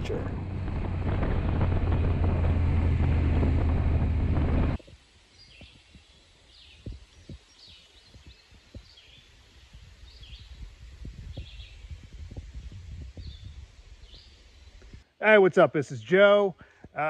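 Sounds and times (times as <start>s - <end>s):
songbird singing: 5.3s - 10.6s, 11.2s - 12.0s.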